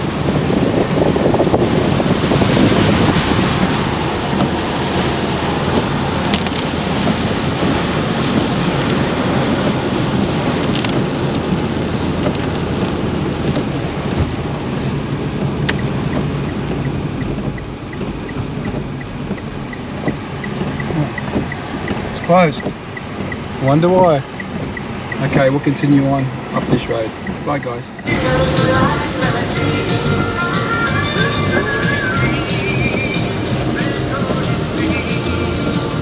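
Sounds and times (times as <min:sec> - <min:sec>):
car driving on wet road: 0:00.0 - 0:36.0
heavy rain rushing: 0:00.0 - 0:36.0
light even ticking: 0:14.7 - 0:28.1.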